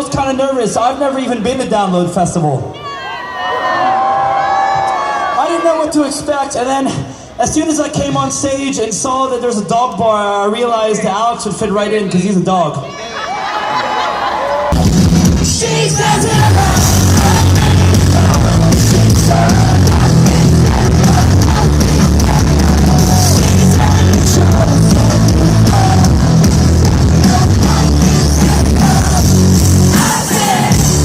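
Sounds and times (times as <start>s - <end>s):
loud rock music with singing: 14.7s - 31.0s.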